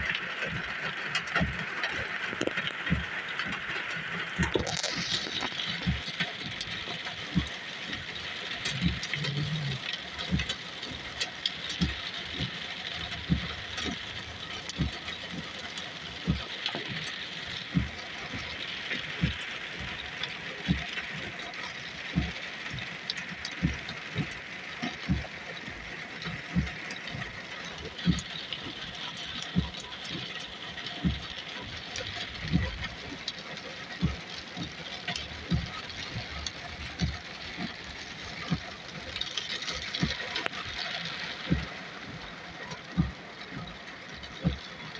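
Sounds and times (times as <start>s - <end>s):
heavy rain hissing: 0.0s - 24.2s.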